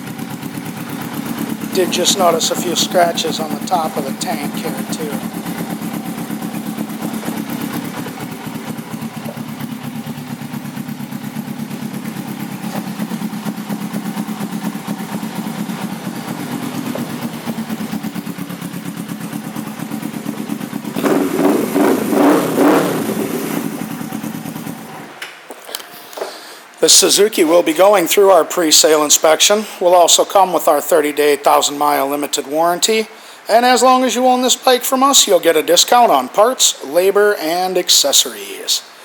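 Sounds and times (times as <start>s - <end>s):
motorcycle engine idling and revving: 0.0s - 25.1s.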